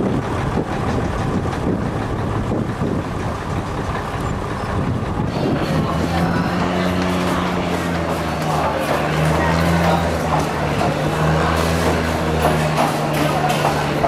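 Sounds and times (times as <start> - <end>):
wind buffeting microphone: 0.0 - 8.2
ferry engine running: 0.0 - 14.0.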